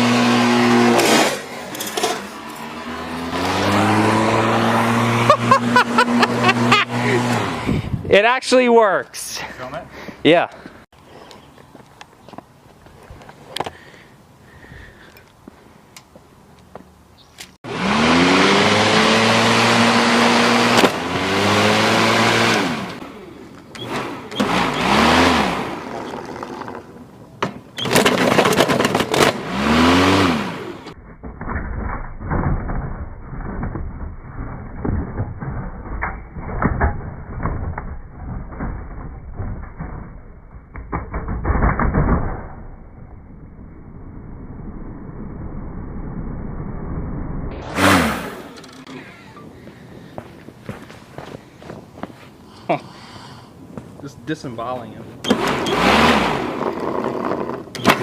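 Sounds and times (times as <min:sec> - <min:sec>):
mower clattering and crackling: 0:00.0 - 0:07.6, 0:18.6 - 0:30.4, 0:54.7 - 0:58.0
lawnmower engine revving: 0:00.0 - 0:07.9, 0:17.6 - 0:27.1, 0:27.8 - 0:31.0, 0:47.5 - 0:49.4, 0:55.2 - 0:58.0.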